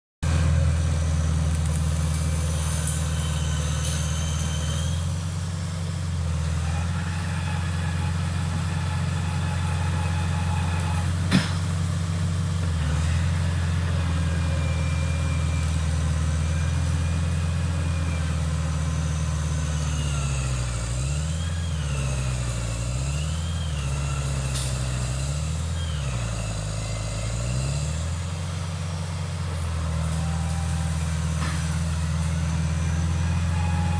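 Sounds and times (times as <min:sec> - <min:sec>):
bulldozer diesel engine running: 0:00.2 - 0:33.9
brief high squeals: 0:02.0 - 0:05.4, 0:06.4 - 0:11.3, 0:13.0 - 0:28.2, 0:29.6 - 0:33.9.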